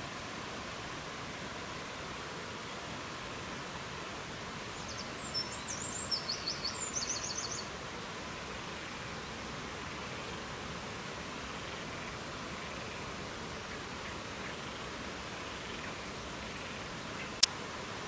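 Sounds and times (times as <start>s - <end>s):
songbird singing: 4.8s - 7.7s.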